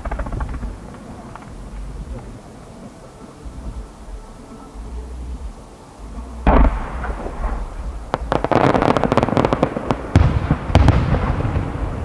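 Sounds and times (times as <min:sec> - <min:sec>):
firework shells cracking: 0:00.0 - 0:02.3, 0:06.4 - 0:11.8
low rumble: 0:00.0 - 0:12.0
heavy firework booms: 0:06.2 - 0:12.0.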